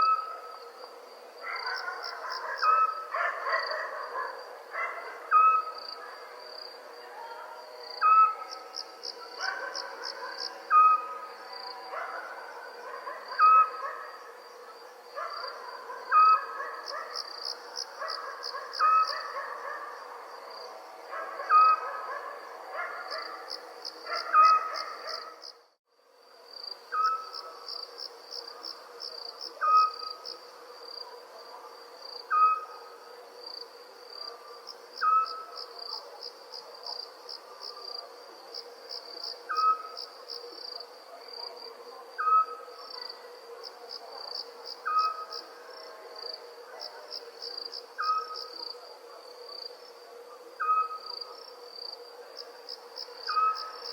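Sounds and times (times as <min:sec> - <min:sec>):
crickets chirping: 0:00.0 - 0:53.9
owl hooting: 0:05.2 - 0:05.8, 0:13.3 - 0:14.0, 0:21.4 - 0:22.2, 0:32.3 - 0:32.8, 0:35.0 - 0:35.6, 0:39.5 - 0:40.0, 0:42.2 - 0:42.6, 0:48.0 - 0:48.4, 0:50.6 - 0:51.3, 0:53.3 - 0:53.8.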